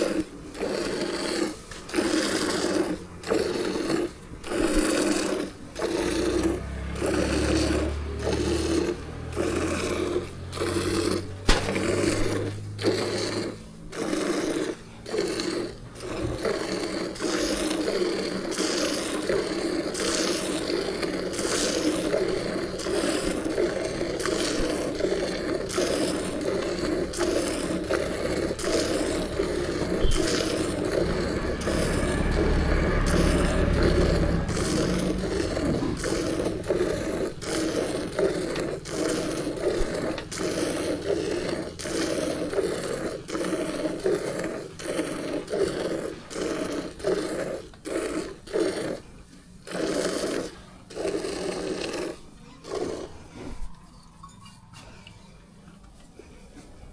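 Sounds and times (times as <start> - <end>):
milk squirting by hand: 0.0 - 55.1.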